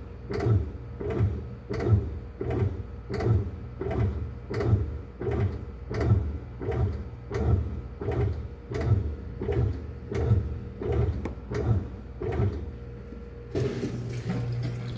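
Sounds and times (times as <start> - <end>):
washing machine hum: 0.0 - 14.9
washing machine knocking rumble: 13.5 - 14.9.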